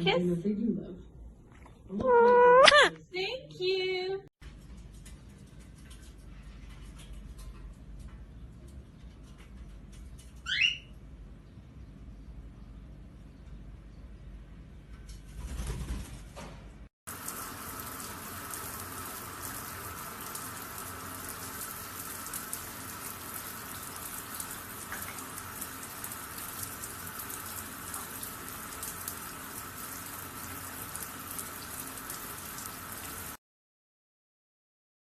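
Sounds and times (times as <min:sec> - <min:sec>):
water pattering: 0:17.1 - 0:33.4.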